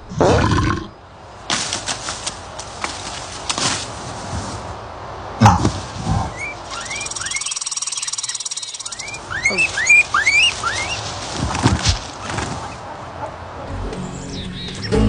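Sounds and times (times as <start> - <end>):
small animal chirping: 6.3 - 11.2.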